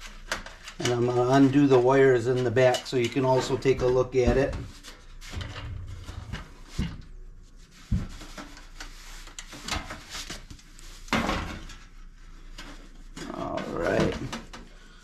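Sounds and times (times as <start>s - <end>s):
clicks and knocks of handling: 0.0s - 7.1s, 12.5s - 14.8s.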